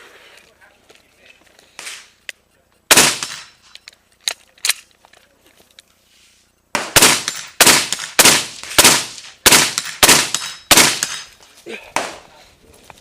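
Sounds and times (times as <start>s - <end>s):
rifle shots: 2.9s - 3.6s, 6.7s - 11.3s.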